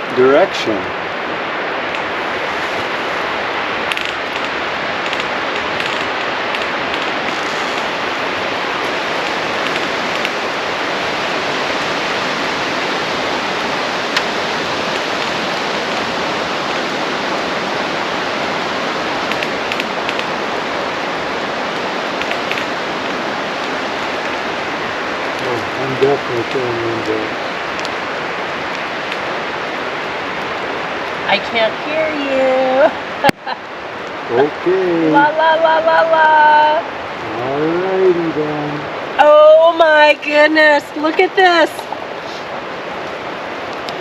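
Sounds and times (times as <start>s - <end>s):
steady rushing noise: 0.0s - 44.0s
faint sharp crackles: 0.2s - 31.3s.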